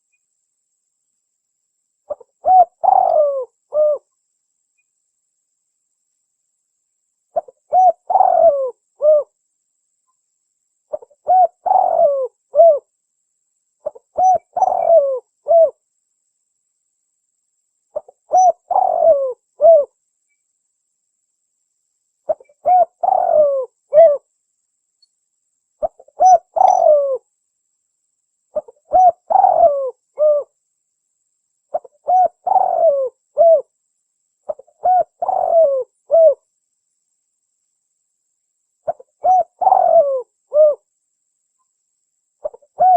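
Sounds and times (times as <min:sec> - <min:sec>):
dove cooing: 0:02.1 - 0:04.1, 0:07.4 - 0:09.4, 0:10.9 - 0:12.9, 0:13.8 - 0:15.8, 0:18.0 - 0:19.9, 0:22.3 - 0:24.3, 0:25.8 - 0:27.2, 0:28.6 - 0:30.5, 0:31.7 - 0:33.7, 0:34.5 - 0:36.4, 0:38.9 - 0:40.9, 0:42.4 - 0:42.9.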